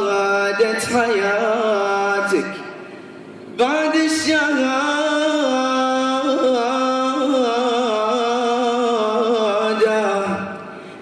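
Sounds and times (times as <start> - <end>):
man chanting verse: 0.0 - 2.7.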